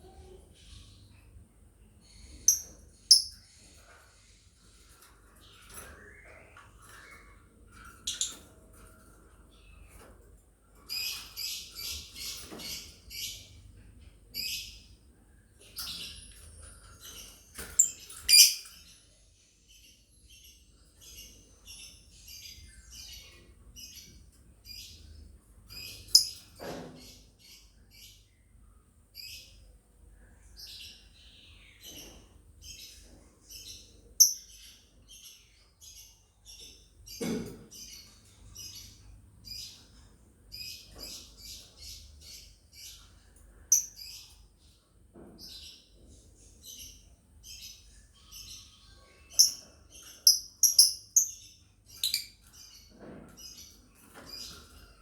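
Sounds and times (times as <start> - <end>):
lovebirds chirping: 2.0 - 3.6, 17.2 - 18.7, 46.8 - 52.8.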